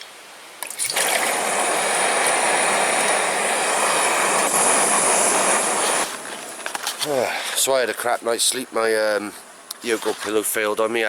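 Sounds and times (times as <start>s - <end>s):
gas stove burner hissing: 0.8s - 7.8s.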